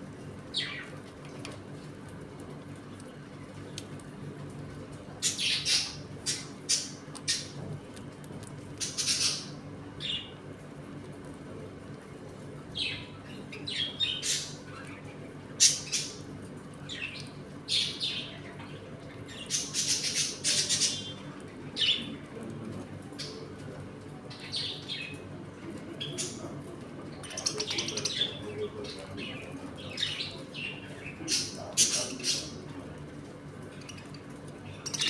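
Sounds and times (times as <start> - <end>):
budgerigars chirping and squawking: 5.2 - 7.5, 8.8 - 10.3, 12.8 - 14.6, 15.6 - 16.3, 16.9 - 18.4, 19.3 - 21.2, 27.2 - 32.6, 34.7 - 35.0.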